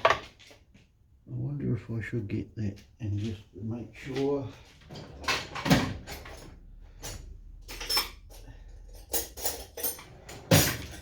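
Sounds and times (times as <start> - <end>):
metal tools clinking: 5.0 - 11.0.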